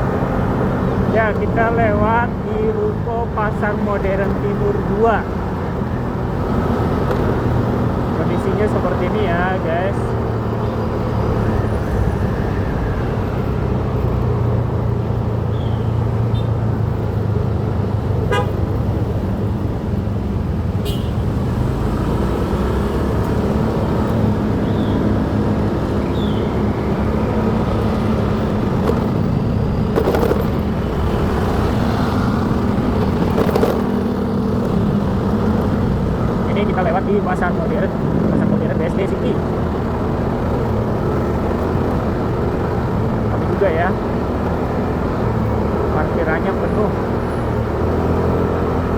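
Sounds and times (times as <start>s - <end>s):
vehicle horn tooting: 18.2s - 18.6s, 20.8s - 21.2s
motorcycle engine running: 27.0s - 46.9s.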